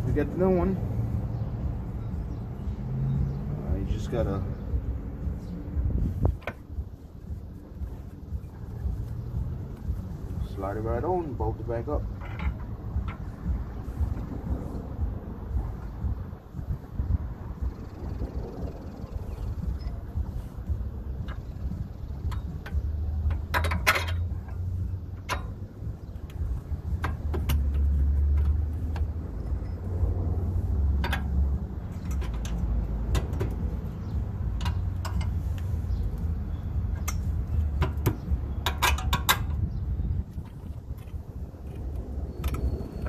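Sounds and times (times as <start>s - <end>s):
low rumble: 12.0s - 37.8s.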